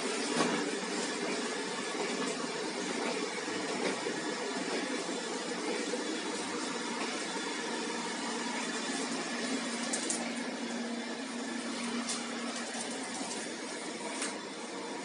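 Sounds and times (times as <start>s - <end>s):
robot vacuum cleaner whirring: 0.0s - 15.0s.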